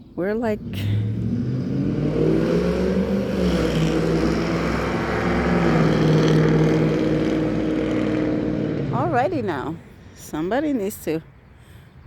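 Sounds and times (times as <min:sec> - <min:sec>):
vehicle engine accelerating: 0:00.4 - 0:10.0.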